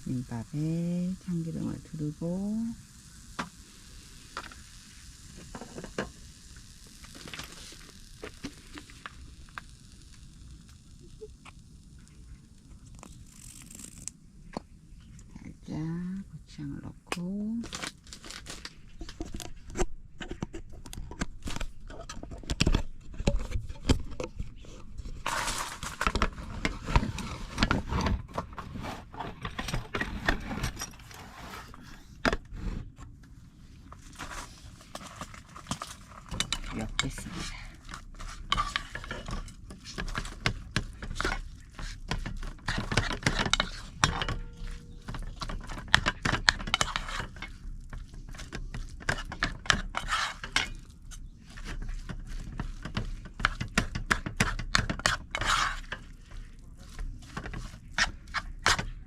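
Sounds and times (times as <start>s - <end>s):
food sizzling in oil: 0.0s - 12.6s
utensil stirring clicks and scrapes: 1.2s - 15.6s, 17.1s - 32.0s, 33.8s - 59.0s
spoon scraping against a bowl: 35.8s - 58.9s.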